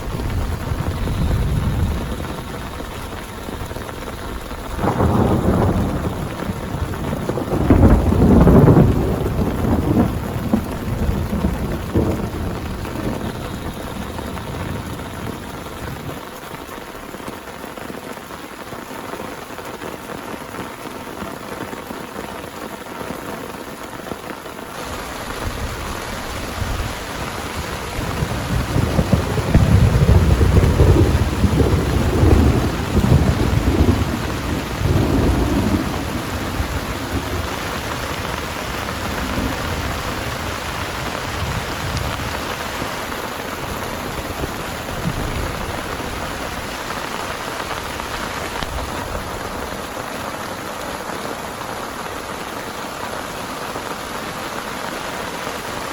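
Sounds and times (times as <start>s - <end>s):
rolling thunder: 0.0s - 16.3s, 24.8s - 50.0s
heavy rain falling: 0.0s - 55.9s.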